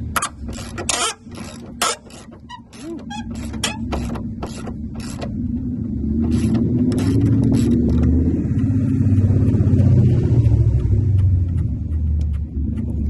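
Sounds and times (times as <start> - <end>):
ratchet wrench clicking: 0.0 - 5.4, 6.2 - 8.1
car engine humming: 0.0 - 13.0.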